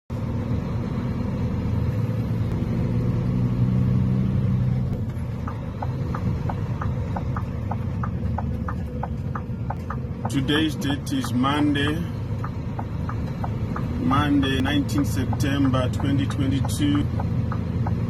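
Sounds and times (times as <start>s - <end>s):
vehicle engine humming: 0.1s - 18.0s
rapid even ticking: 5.0s - 18.0s.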